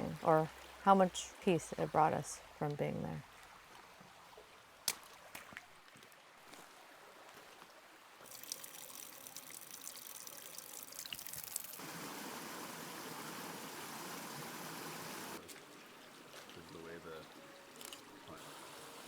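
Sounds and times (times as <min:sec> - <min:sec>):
stream water rushing: 0:11.8 - 0:19.0.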